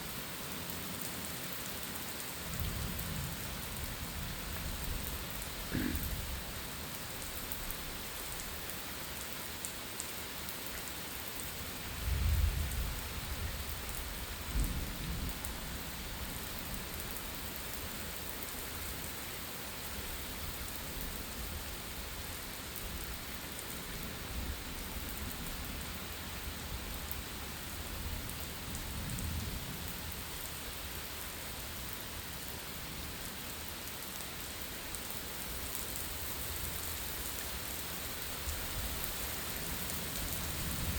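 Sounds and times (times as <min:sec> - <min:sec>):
steady rain falling: 0:00.0 - 0:40.9
low rumble of thunder: 0:12.0 - 0:15.6.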